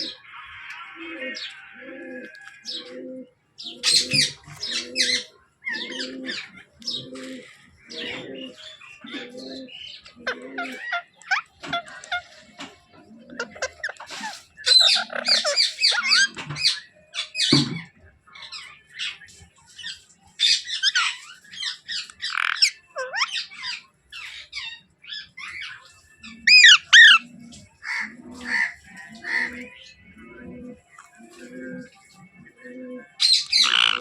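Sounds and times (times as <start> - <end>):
parakeet chirping and squawking: 3.6 - 17.8, 19.8 - 30.0, 33.2 - 34.0.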